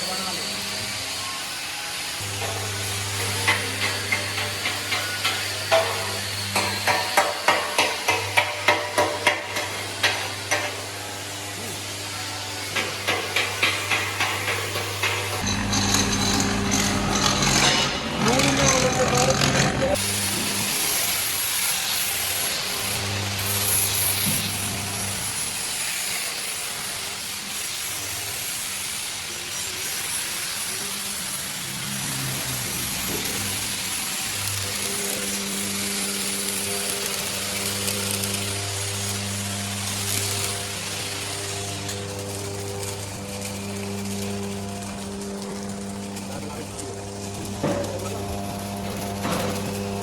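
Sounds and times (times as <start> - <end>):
electrical hum: 15.0 - 20.7.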